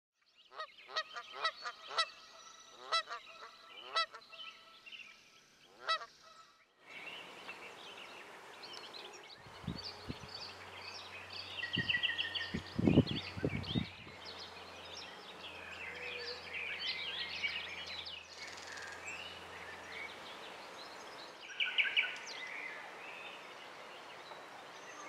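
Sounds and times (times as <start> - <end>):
small birds chirping: 0.5 - 25.0
honking bird calls: 5.7 - 19.8.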